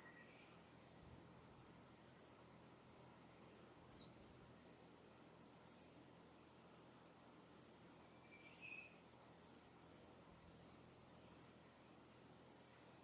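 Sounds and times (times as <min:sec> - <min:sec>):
soft background hiss: 0:00.0 - 0:13.0.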